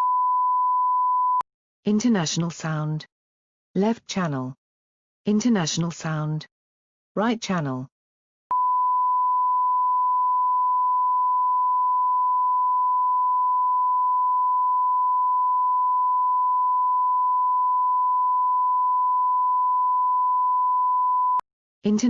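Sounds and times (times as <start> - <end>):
steady sine-wave tone: 8.5 - 21.4.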